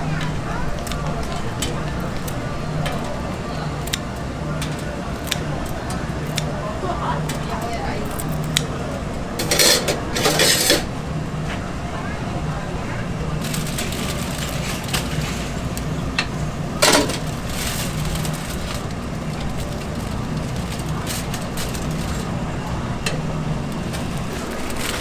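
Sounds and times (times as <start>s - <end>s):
utensils clicking and knocking: 9.4s - 10.9s.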